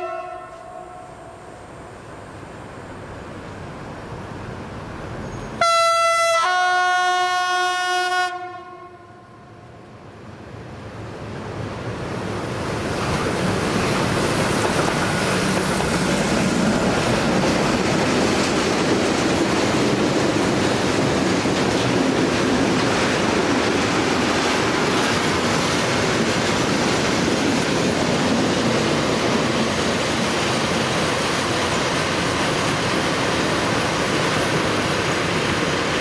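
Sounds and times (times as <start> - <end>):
two-tone locomotive horn: 0.0 - 1.7, 5.6 - 9.7
freight train passing on rails: 0.0 - 36.0.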